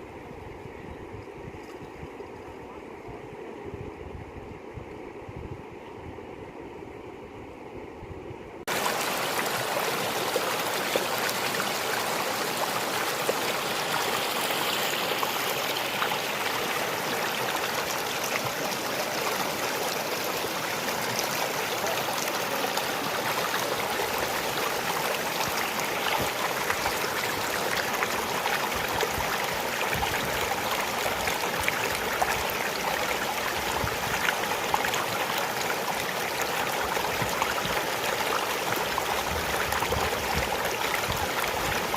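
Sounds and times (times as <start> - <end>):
floodwater rushing: 8.7 - 41.9.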